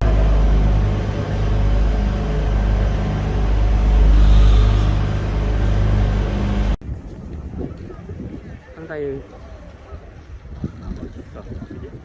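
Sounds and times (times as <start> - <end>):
vehicle mechanical drone: 0.0 - 6.8.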